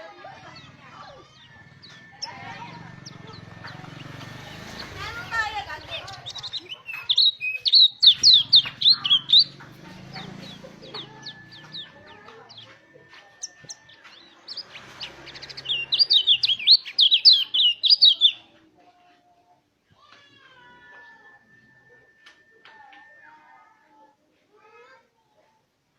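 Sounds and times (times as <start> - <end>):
bird chirping and trilling: 0.0 - 18.5.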